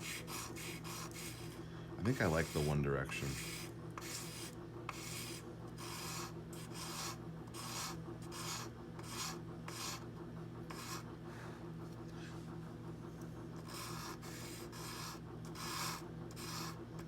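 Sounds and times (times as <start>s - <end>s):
tweezer tips scraping sandpaper: 0.0s - 10.0s, 13.6s - 16.8s.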